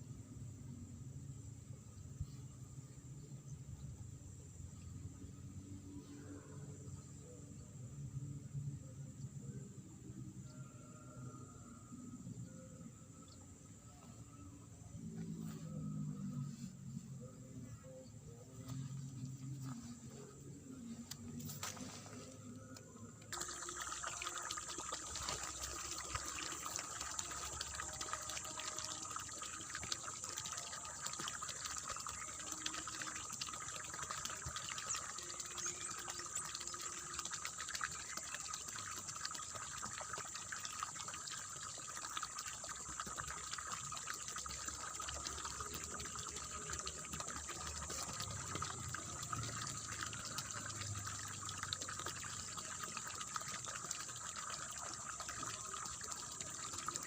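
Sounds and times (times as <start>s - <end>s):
water splashing and gurgling: 17.8s - 57.0s.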